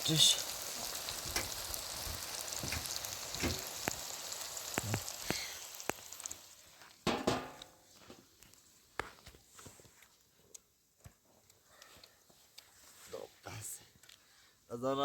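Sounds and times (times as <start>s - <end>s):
food sizzling in hot oil: 0.0s - 7.7s.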